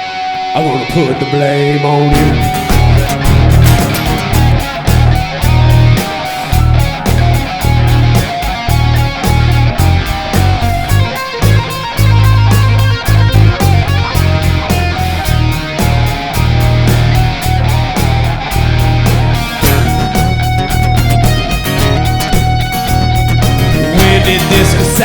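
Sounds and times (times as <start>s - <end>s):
electric guitar: 0.0s - 25.0s
live rock band playing: 2.1s - 25.0s.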